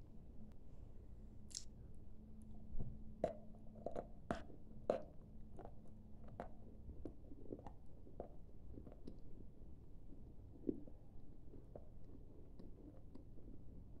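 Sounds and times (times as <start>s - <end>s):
crunchy chewing: 3.2s - 14.0s.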